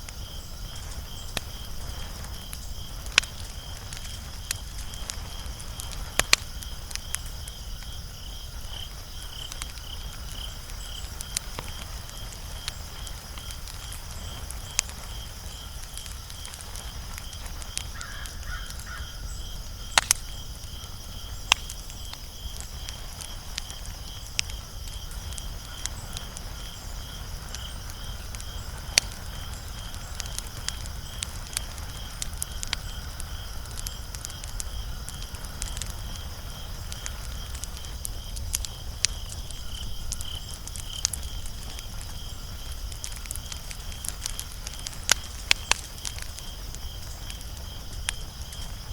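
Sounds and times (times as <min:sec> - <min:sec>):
wood fire crackling: 0:00.0 - 0:48.9.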